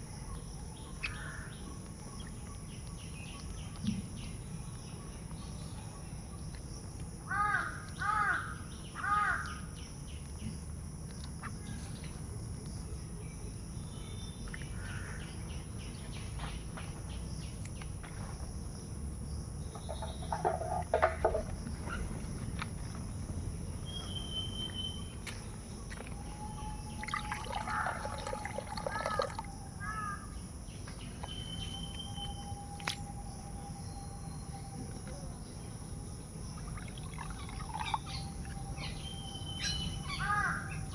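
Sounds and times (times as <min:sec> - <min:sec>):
crows cawing: 0:07.3 - 0:09.6, 0:27.4 - 0:30.3, 0:40.1 - 0:40.8
steady high-pitched hum: 0:21.3 - 0:40.9.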